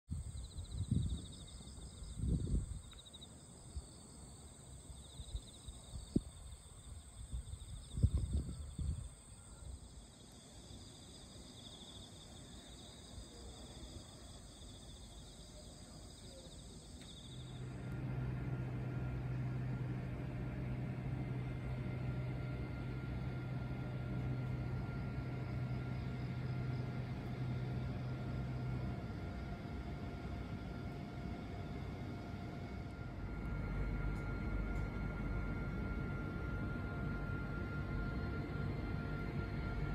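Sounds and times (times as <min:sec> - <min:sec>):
low electrical hum: 0:00.1 - 0:39.9
insects trilling: 0:00.2 - 0:17.7.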